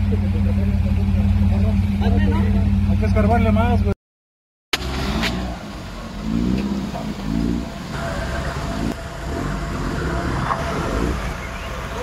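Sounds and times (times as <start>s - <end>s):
engine running with low rumble: 0.0s - 4.0s, 4.8s - 12.0s
indistinct voices: 6.0s - 12.0s.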